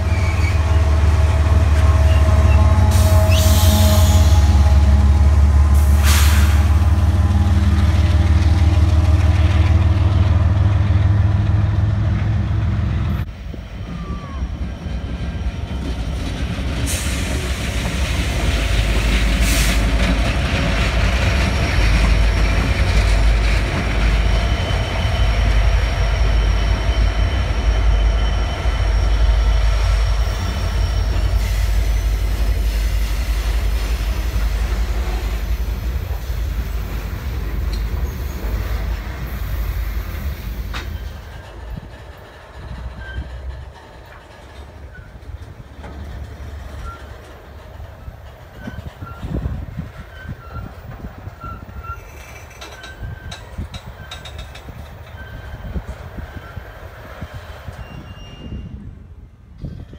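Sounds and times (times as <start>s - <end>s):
faint high wheel squeal: 0.0s - 0.8s, 24.1s - 36.5s, 37.6s - 41.8s, 42.8s - 43.6s, 44.8s - 45.3s, 46.7s - 47.3s, 48.0s - 58.9s
diesel locomotive engines rumbling: 0.0s - 59.9s.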